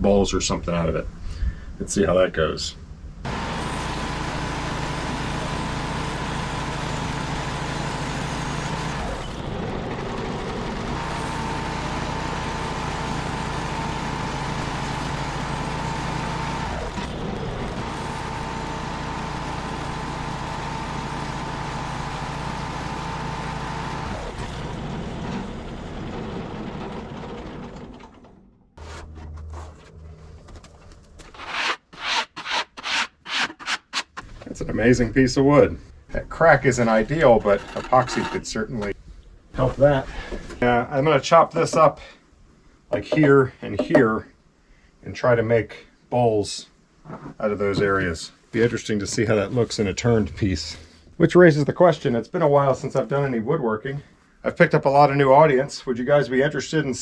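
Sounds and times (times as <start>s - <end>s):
sawmill cutting log: 3.3s - 27.9s.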